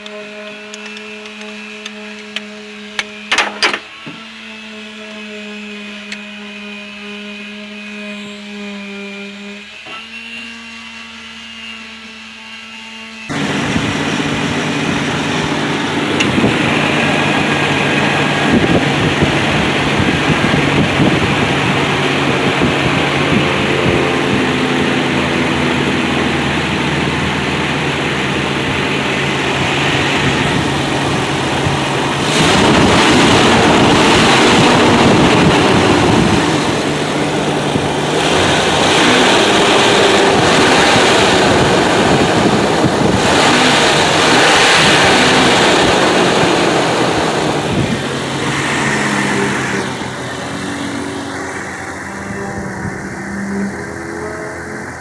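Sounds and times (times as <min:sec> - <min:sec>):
car engine idling and revving: 0:13.3 - 0:55.0.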